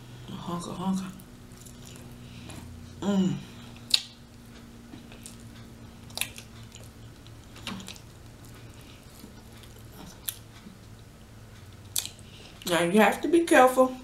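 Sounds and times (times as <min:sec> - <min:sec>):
steady low hum: 0:00.0 - 0:14.0
chewing: 0:01.5 - 0:02.9, 0:03.6 - 0:12.7
wet mouth clicks: 0:03.9 - 0:04.2.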